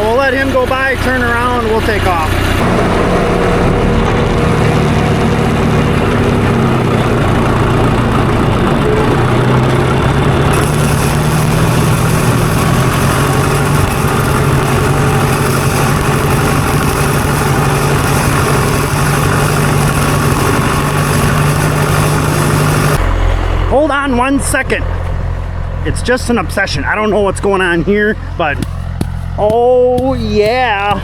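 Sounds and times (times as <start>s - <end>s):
diesel tractor engine running: 0.0s - 31.0s
bright hiss: 10.5s - 23.0s.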